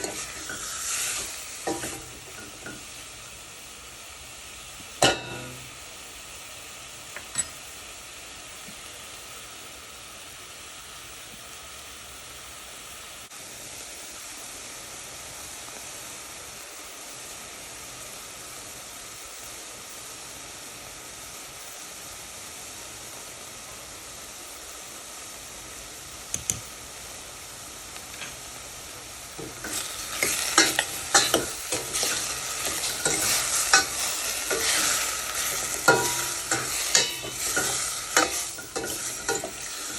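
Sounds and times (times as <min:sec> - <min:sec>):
utensil scraping a pan: 0:00.0 - 0:02.7, 0:29.4 - 0:39.9
food sizzling in oil: 0:00.0 - 0:39.9.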